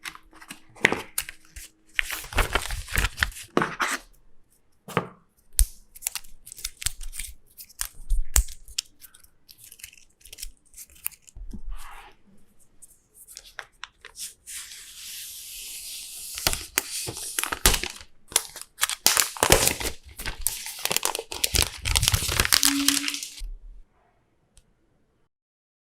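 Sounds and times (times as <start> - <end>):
packaging clicks and rustles: 0.0 - 3.6, 16.3 - 23.4
packaging tearing and crinkling: 0.3 - 4.0, 5.6 - 11.4, 16.3 - 23.4.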